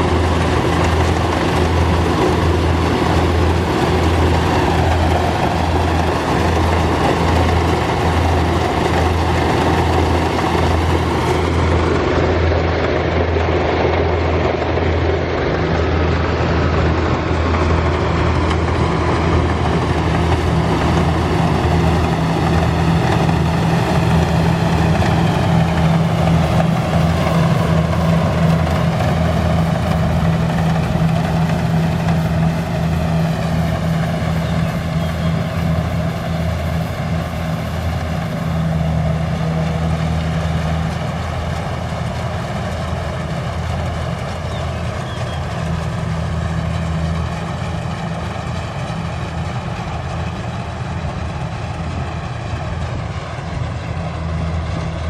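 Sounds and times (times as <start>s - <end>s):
combine harvester engine hum: 0.0s - 55.0s
machinery noise: 0.0s - 55.0s.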